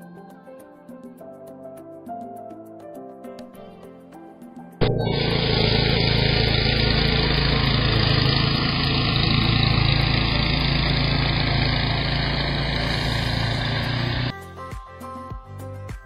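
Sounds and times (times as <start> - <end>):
engine droning hum: 4.8 - 14.3.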